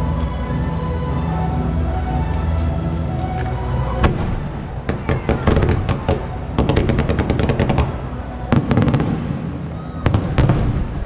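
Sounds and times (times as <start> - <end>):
music: 0.0 - 11.0
rapid fireworks crackling: 3.8 - 11.0
fireworks bangs: 4.0 - 11.0.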